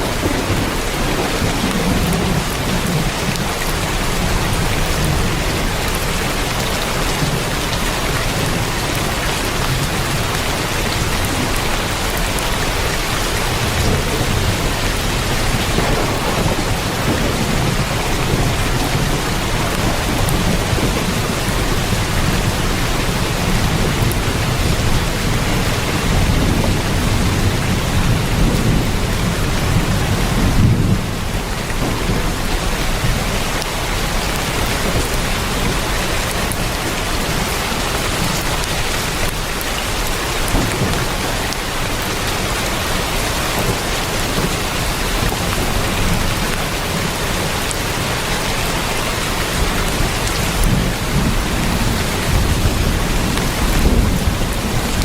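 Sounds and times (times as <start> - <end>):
heavy rain on a tin roof: 0.0 - 55.0
thunder rumble: 0.0 - 55.0.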